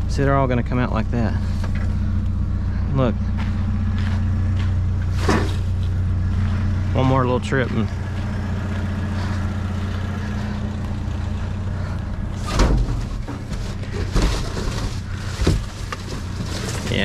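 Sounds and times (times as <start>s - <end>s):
engine idling: 0.0s - 17.0s
loud thumps: 12.4s - 16.5s.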